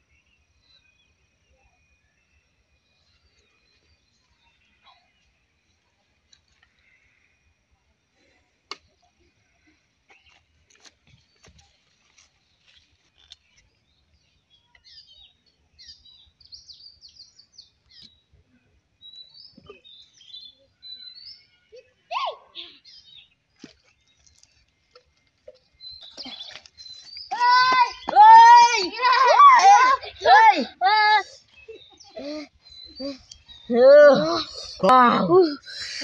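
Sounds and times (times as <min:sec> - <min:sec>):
small birds chirping: 0:08.8 - 0:36.0.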